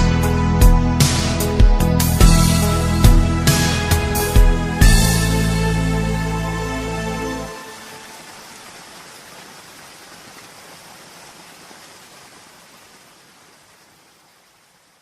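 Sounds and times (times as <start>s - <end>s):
rain hissing: 3.6s - 15.0s.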